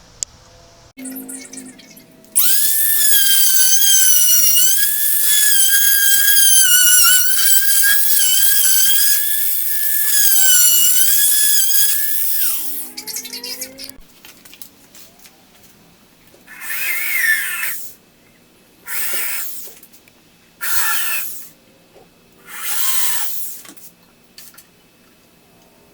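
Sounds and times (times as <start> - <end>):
electric router whining: 2.3 - 13.0.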